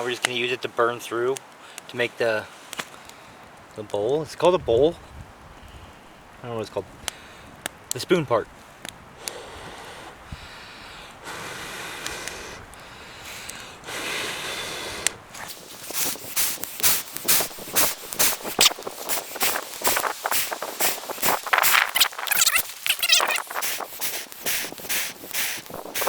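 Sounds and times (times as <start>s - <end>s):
person blowing on hot coal: 9.2s - 26.0s.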